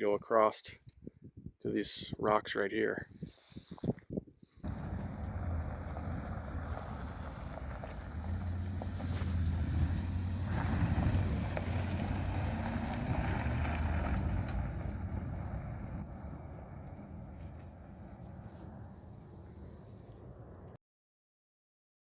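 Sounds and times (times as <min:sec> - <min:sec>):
wind buffeting microphone: 0:00.8 - 0:02.2, 0:03.1 - 0:20.7
engine humming: 0:04.6 - 0:20.8.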